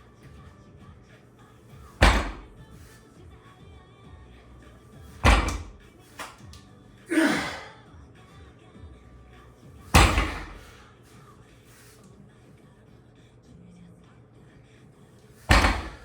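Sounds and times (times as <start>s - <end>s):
faint background music: 0.0s - 16.0s
heavy thuds: 1.8s - 3.0s, 5.0s - 6.4s, 9.8s - 10.8s, 15.4s - 16.0s.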